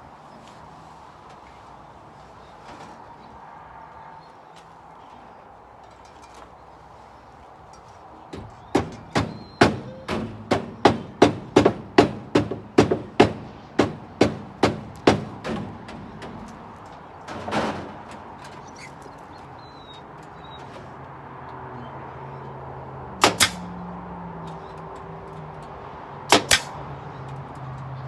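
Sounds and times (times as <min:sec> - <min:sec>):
hammer driving nail into wood: 0:23.2 - 0:23.6, 0:26.3 - 0:26.8.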